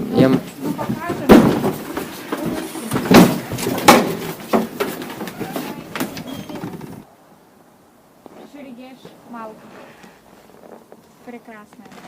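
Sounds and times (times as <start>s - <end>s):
hard objects knocking together: 0.3s - 7.0s.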